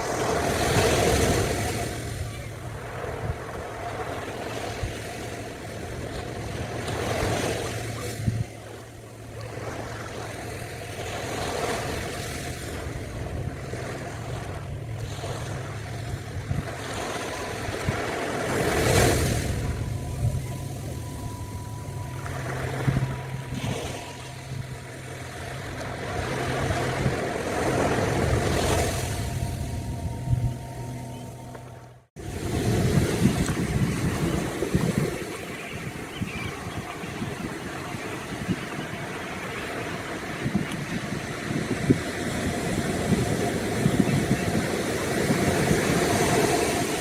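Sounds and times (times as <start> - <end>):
faint steady tone: 0.0 - 32.1
ocean surf breaking: 0.0 - 47.0
steady low hum: 5.4 - 38.2.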